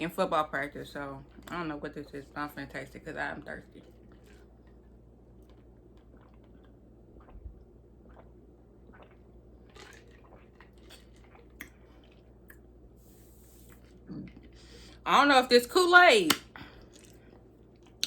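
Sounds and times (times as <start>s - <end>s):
person sipping and swallowing: 3.8s - 15.0s, 16.6s - 18.0s.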